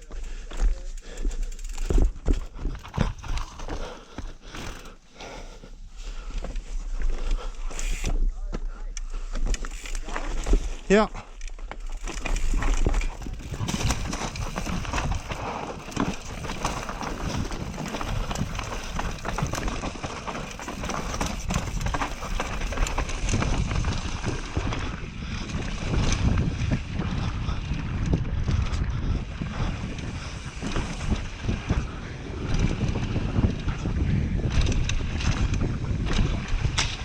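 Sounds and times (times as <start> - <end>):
tyre and trail noise: 0.0 - 37.0
wind on microphone: 12.0 - 37.0
bike knocks and clicks: 30.5 - 37.0.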